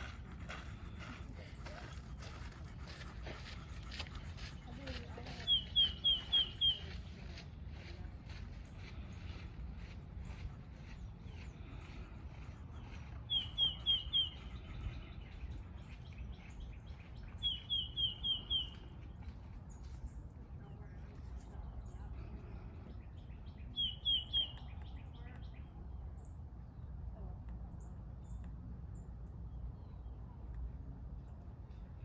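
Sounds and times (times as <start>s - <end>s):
low background rumble: 0.0s - 32.0s
bird chirping: 4.9s - 7.3s, 8.8s - 19.1s, 22.8s - 26.8s.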